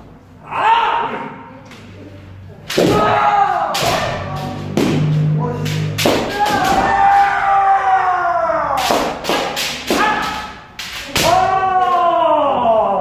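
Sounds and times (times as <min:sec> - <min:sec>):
bamboo sword strikes cracking: 0:02.7 - 0:07.3, 0:08.8 - 0:12.0
person shouting: 0:06.2 - 0:08.9, 0:09.9 - 0:10.5.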